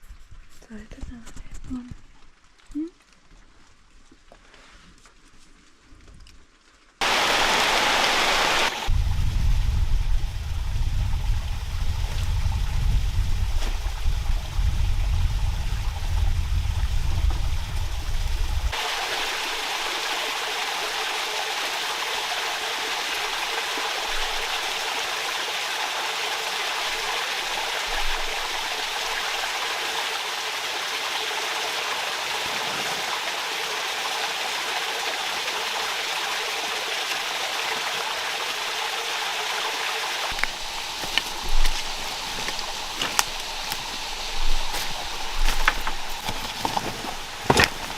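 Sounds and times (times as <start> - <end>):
forest stream rushing: 7.0 - 9.2, 17.2 - 47.9
heavy low rumble: 8.9 - 18.8.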